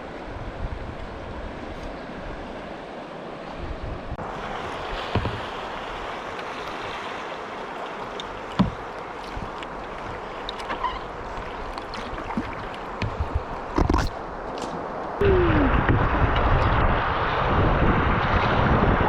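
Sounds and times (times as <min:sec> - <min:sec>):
river water rushing: 0:00.0 - 0:15.2
water splashes: 0:01.7 - 0:18.9
knocks on kayak: 0:05.0 - 0:05.5, 0:08.6 - 0:08.8.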